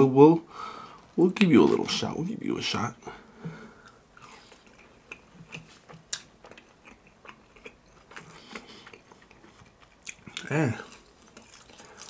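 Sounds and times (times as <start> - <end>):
biting and chewing crunchy food: 3.8 - 12.0.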